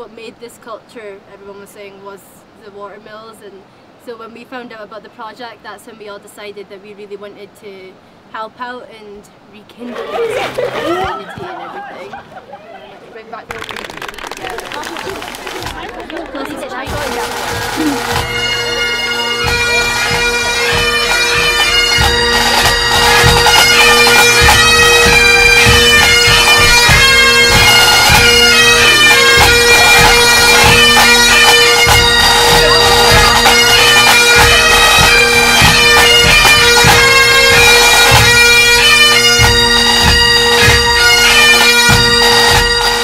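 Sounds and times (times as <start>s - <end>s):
drum strikes: 15.4s - 38.4s, 39.4s - 40.9s, 41.9s - 42.9s
bagpipe music: 16.6s - 43.0s.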